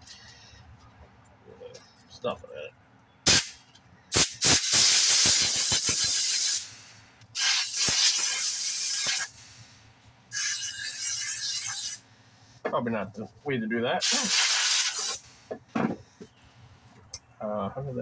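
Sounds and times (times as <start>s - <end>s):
compressed air blow gun hissing: 3.3s - 12.0s, 14.0s - 15.5s.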